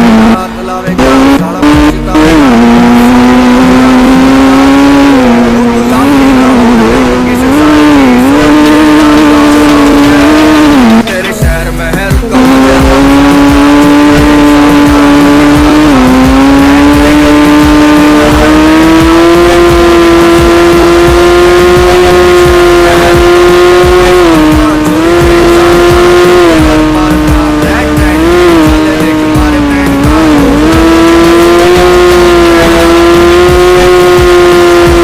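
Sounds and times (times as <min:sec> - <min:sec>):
sport bike engine at high revs: 0:00.0 - 0:35.0.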